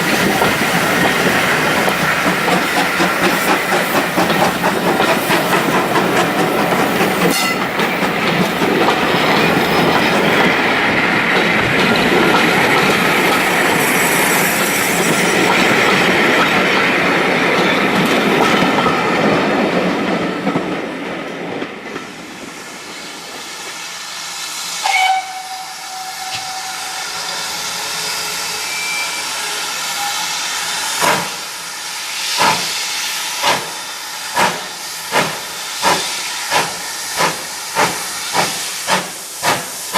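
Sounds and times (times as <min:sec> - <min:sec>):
steam locomotive exhaust beats: 0:00.0 - 0:19.4, 0:22.0 - 0:39.9
train running noise and hiss: 0:00.0 - 0:39.9
train whistle: 0:07.3 - 0:07.7, 0:24.8 - 0:31.5.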